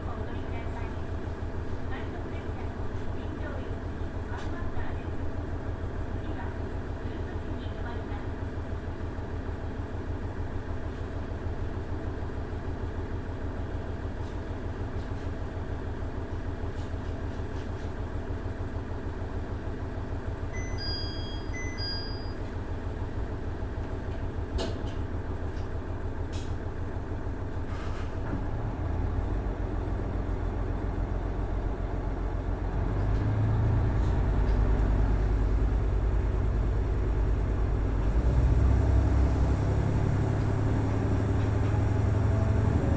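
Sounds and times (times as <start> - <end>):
diesel railcar engine drone: 0.0 - 42.9
short high beeps: 20.6 - 22.5.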